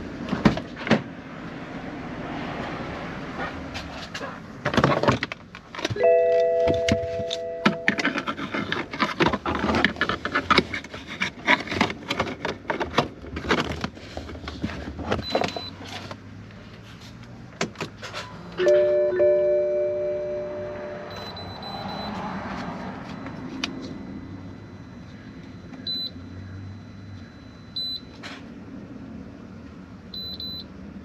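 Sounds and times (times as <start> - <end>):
chime-like tone: 6.0 - 7.9, 18.7 - 21.4.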